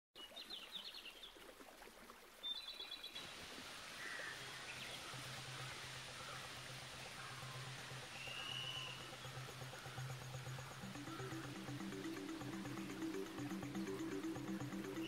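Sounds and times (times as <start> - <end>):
background hiss: 3.1 - 15.0
faint bird calls: 3.9 - 15.0
small bird chirping trills: 4.0 - 15.0
low steady hum: 4.4 - 15.0.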